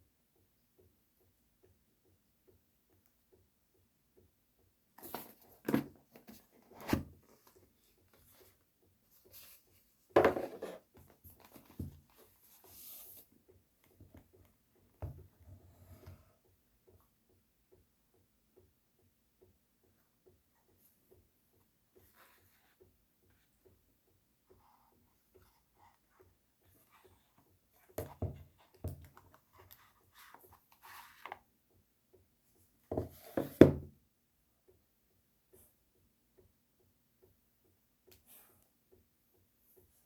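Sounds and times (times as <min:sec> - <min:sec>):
objects knocking and rustling: 0:10.1 - 0:12.2.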